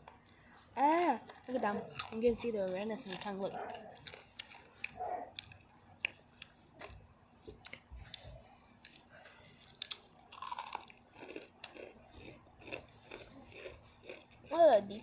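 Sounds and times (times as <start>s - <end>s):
people crunching chips: 0.1s - 6.5s, 8.8s - 15.0s.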